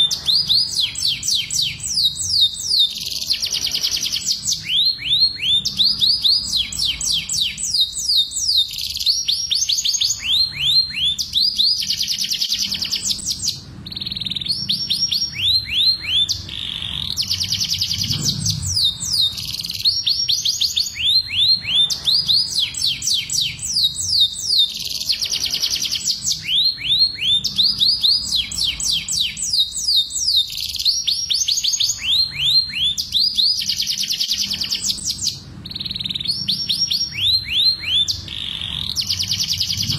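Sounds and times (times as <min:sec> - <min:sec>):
canaries singing trills: 0:00.0 - 0:39.9
low hum: 0:12.6 - 0:20.1, 0:35.4 - 0:39.9.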